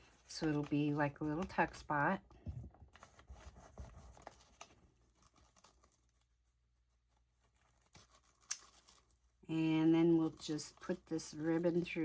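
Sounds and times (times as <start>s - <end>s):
paper rustling: 0.0s - 2.0s, 2.8s - 9.3s.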